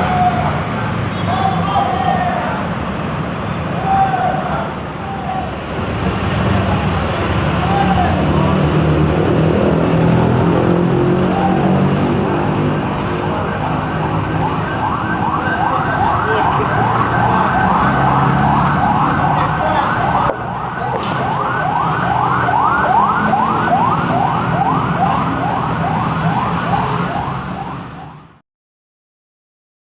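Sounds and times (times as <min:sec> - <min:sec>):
bus engine running: 0:00.0 - 0:27.8
bus siren horn yelping: 0:14.3 - 0:27.8.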